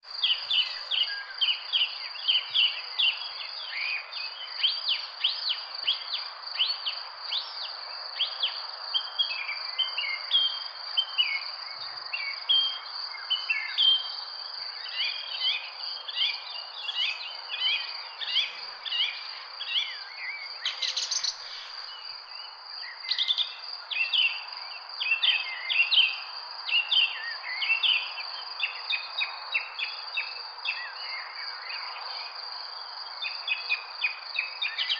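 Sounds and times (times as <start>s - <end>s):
birds chirping: 0.1s - 1.5s, 16.2s - 23.8s.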